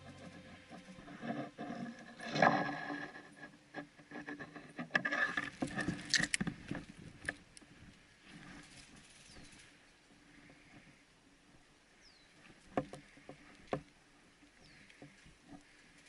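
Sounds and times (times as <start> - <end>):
rustling and scraping brush: 0.0 - 11.0.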